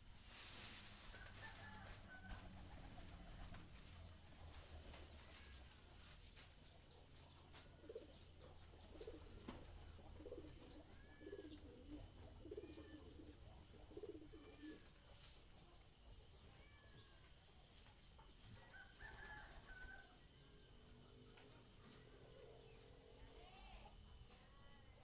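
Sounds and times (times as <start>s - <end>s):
high-pitched whine: 0.0s - 25.0s
dove cooing: 7.5s - 15.1s.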